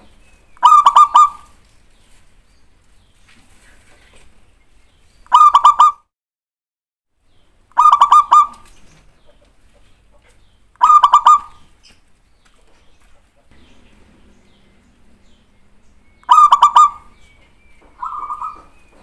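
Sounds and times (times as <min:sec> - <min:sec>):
dove cooing: 0:00.6 - 0:01.6, 0:05.3 - 0:06.0, 0:07.8 - 0:08.7, 0:10.8 - 0:11.7, 0:13.5 - 0:19.0.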